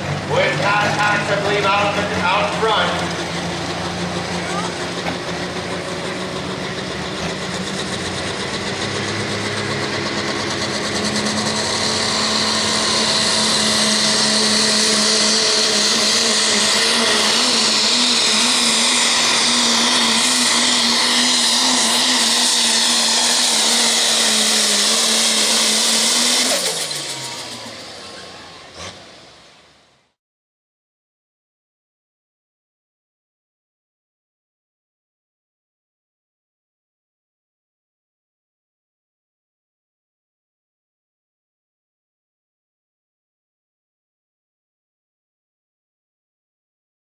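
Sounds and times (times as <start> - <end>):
diesel engine at full throttle: 0.0 - 30.2.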